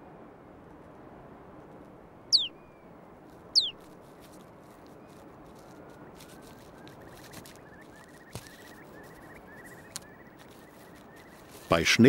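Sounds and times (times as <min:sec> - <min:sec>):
low outdoor hiss: 0:00.0 - 0:12.0
bird twittering: 0:02.3 - 0:02.8, 0:03.6 - 0:03.8, 0:06.8 - 0:11.7.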